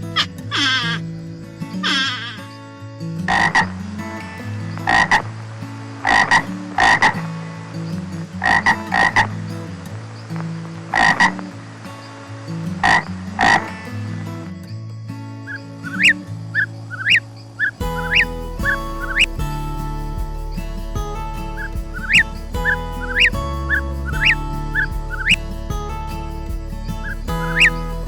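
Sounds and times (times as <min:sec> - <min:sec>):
steady low drone: 0:17.8 - 0:28.0.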